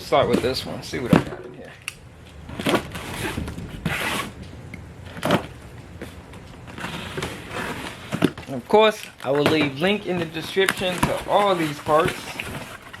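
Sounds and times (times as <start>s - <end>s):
packaging rustling and ripping: 2.4s - 4.4s, 5.1s - 13.0s.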